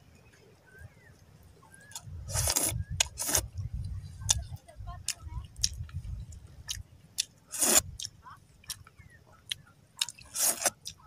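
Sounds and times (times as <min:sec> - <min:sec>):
wet mouth clicks: 0:05.6 - 0:05.9.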